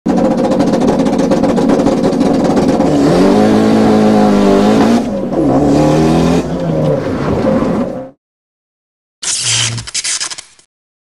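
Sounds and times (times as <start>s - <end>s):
car engine accelerating hard: 0.1s - 8.2s.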